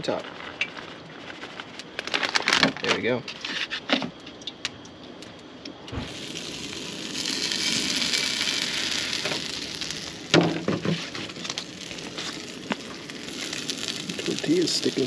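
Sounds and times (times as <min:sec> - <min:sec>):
food sizzling in a pan: 0:06.0 - 0:15.0.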